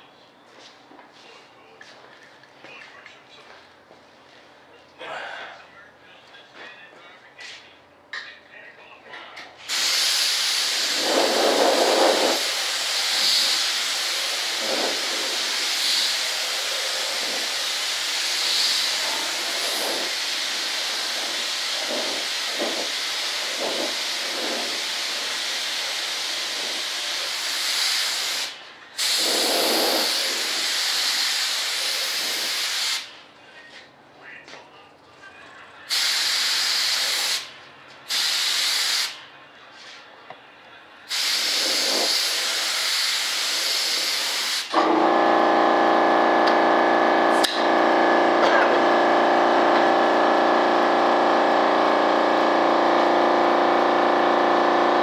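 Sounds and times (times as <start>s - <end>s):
primer spraying hiss: 9.7s - 33.1s, 35.9s - 37.5s, 38.1s - 39.2s, 41.1s - 44.8s.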